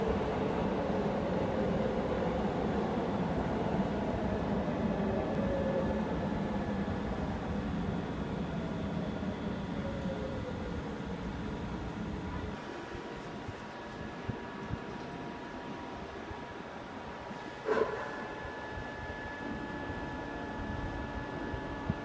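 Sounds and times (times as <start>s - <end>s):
electric train motor whine: 18.0s - 22.0s.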